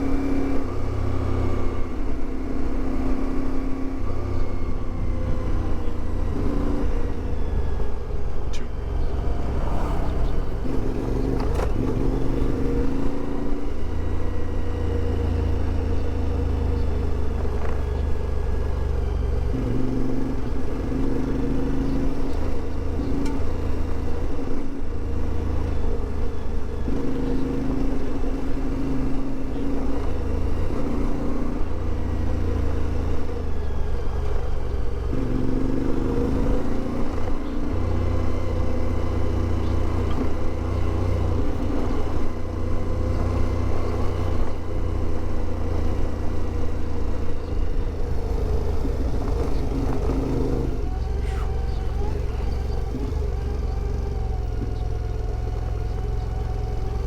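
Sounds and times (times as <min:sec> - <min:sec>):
motorcycle engine running: 0:05.0 - 0:24.8, 0:25.5 - 0:57.0.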